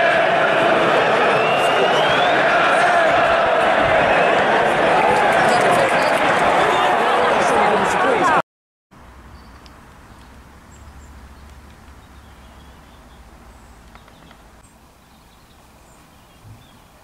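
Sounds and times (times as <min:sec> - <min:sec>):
small birds chirping: 0:09.2 - 0:17.0.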